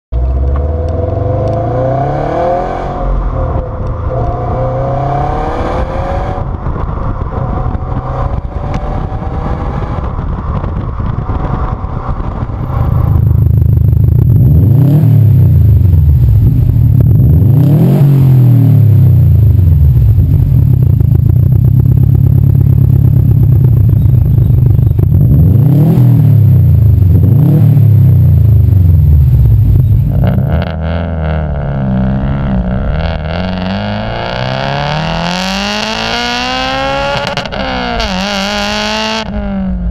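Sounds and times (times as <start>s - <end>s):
car exhaust revving: 0.2s - 39.9s
engine idling with deep burble: 19.4s - 25.3s.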